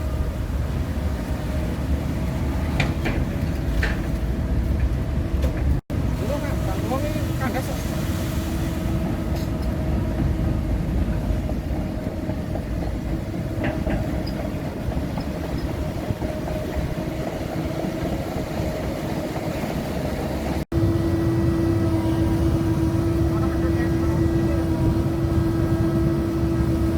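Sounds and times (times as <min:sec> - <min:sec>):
excavator diesel engine rumble: 0:00.0 - 0:08.0, 0:08.8 - 0:26.9
constant whine: 0:08.9 - 0:26.9.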